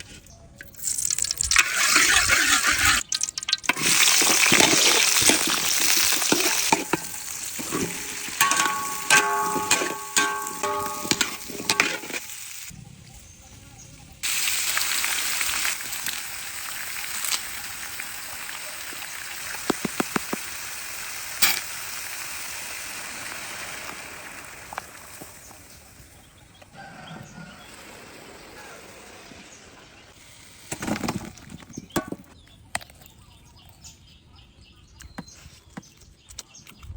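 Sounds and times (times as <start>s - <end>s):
chicken sizzling in hot oil: 0.6s - 13.2s, 14.0s - 26.3s, 26.9s - 30.7s.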